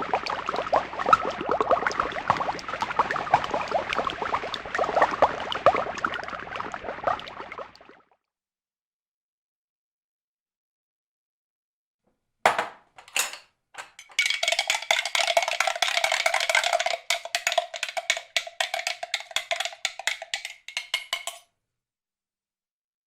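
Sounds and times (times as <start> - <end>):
fast clattering rattle with ringing: 13.0 - 21.4.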